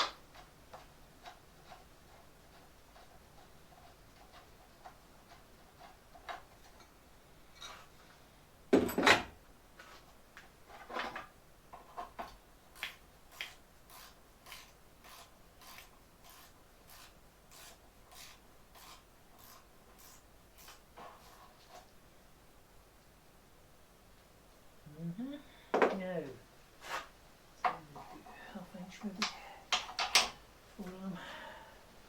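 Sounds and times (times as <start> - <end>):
metal tools clunking: 8.7 - 9.4.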